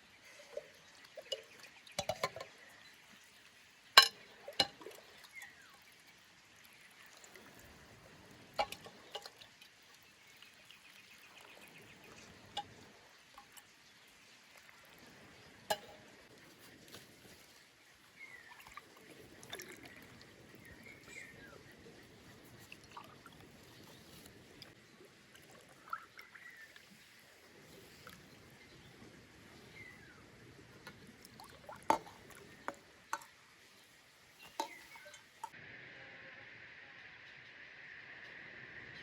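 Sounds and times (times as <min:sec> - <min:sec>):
liquid pouring and trickling: 0:00.0 - 0:35.6.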